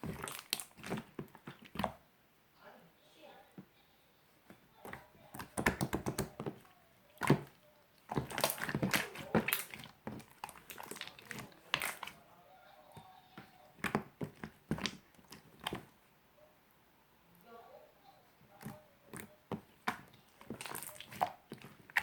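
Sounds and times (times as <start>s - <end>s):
slime squished by hand: 0.0s - 2.0s, 4.8s - 12.2s, 13.4s - 16.0s, 18.4s - 22.0s.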